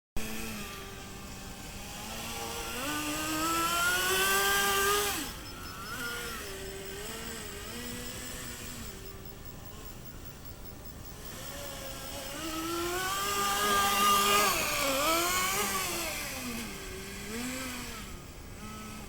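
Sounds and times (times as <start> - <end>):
electric motors whining: 0.2 - 19.0.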